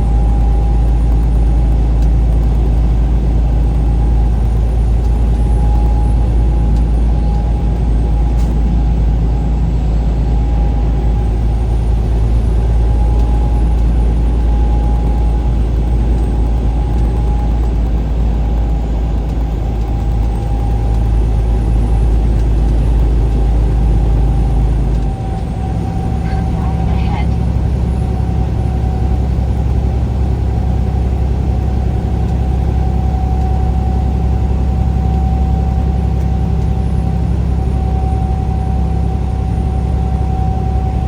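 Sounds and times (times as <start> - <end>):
vehicle driving on highway: 0.0 - 41.0
steady whine: 19.6 - 31.6.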